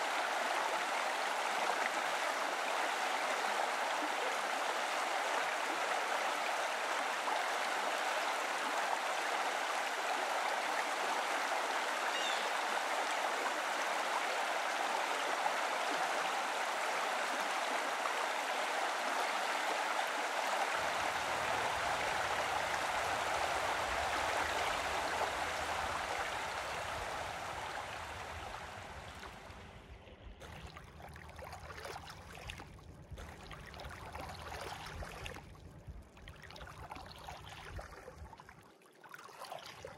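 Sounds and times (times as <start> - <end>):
steady rushing noise: 20.7 - 30.4
low rumble: 20.9 - 34.2.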